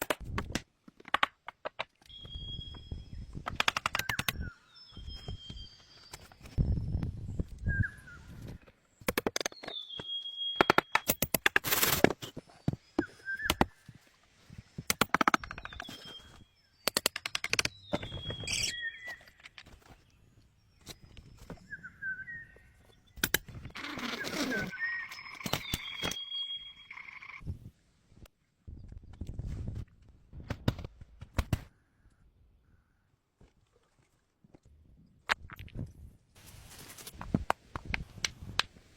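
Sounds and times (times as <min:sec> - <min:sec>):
bird whistled call: 0:02.1 - 0:03.1, 0:07.6 - 0:08.4, 0:09.6 - 0:10.9, 0:13.0 - 0:13.8, 0:17.9 - 0:19.3, 0:21.6 - 0:22.9, 0:24.1 - 0:27.2
bird chirp: 0:02.1 - 0:11.2, 0:15.4 - 0:27.4.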